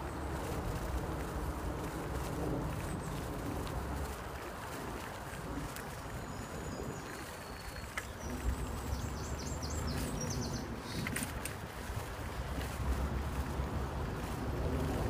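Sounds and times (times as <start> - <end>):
wind rumble on microphone: 0.0 - 15.0
songbird singing: 5.8 - 11.3.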